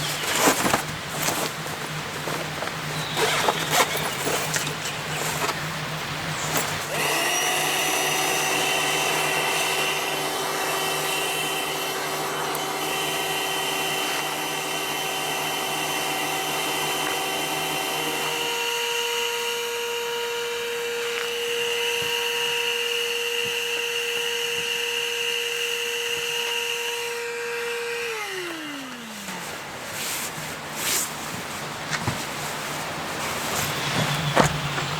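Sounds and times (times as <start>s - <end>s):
small electric motor humming: 6.4s - 29.8s.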